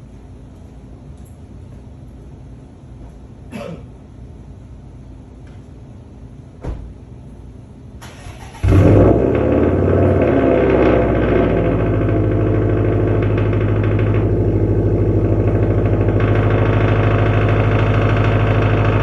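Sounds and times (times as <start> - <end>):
car engine cranking and starting: 8.0 - 19.0.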